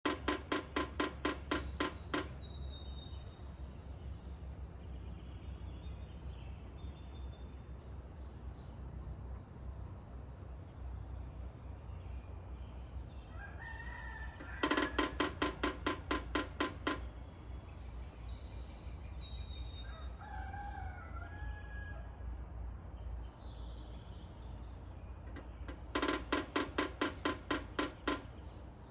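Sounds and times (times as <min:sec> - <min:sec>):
woodpecker hammering on wood: 0:00.0 - 0:02.8, 0:13.9 - 0:17.6, 0:25.2 - 0:28.8.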